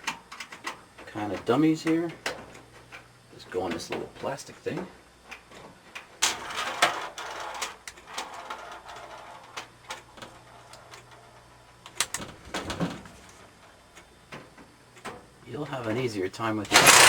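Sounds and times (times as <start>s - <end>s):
plastic and metal parts clattering: 16.6s - 17.0s.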